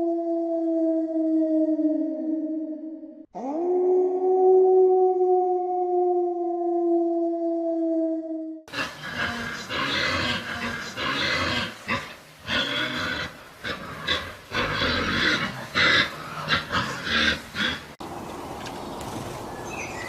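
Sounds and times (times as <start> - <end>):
pigs grunting and squealing: 8.7 - 18.0.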